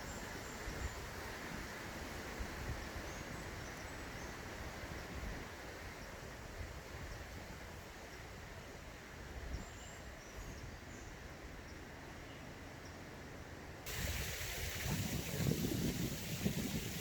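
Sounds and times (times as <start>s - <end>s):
stream water flowing: 13.9s - 17.0s.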